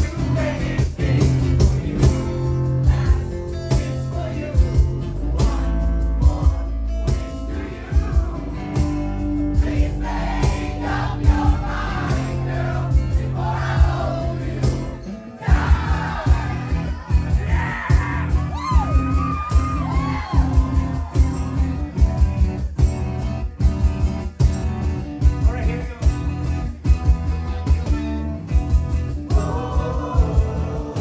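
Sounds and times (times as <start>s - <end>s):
man singing: 0.0s - 9.0s, 29.3s - 31.0s
strummed acoustic guitars: 0.0s - 31.0s.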